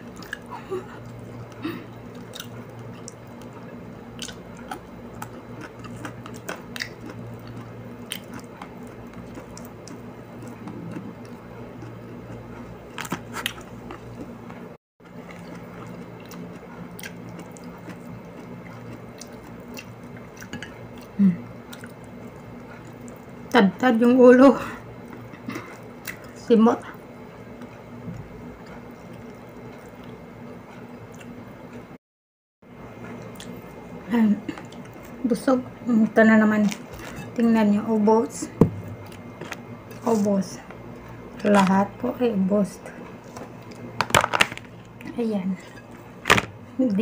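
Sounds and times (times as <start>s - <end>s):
chewing: 0.0s - 23.5s, 28.6s - 30.2s, 30.8s - 31.8s
steady low hum: 0.0s - 32.0s, 32.7s - 47.0s
small clicks and crunches: 43.3s - 44.8s.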